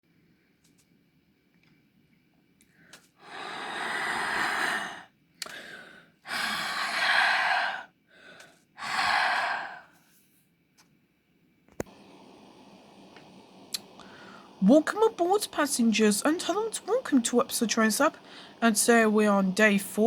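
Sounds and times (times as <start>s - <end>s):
short breaths: 2.7s - 10.2s, 11.9s - 14.6s, 18.1s - 18.6s
breathy exhales: 2.8s - 10.0s, 11.9s - 14.6s, 17.4s - 18.7s.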